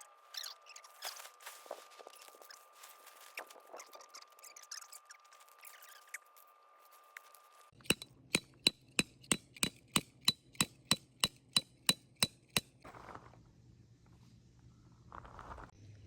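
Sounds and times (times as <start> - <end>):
hammer striking steel stake: 7.8 - 12.8.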